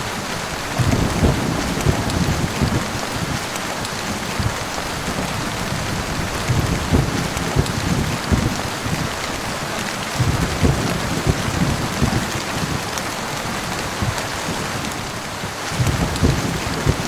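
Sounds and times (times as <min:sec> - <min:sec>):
heavy rain falling: 0:00.0 - 0:17.0
low rumbling: 0:00.6 - 0:03.4.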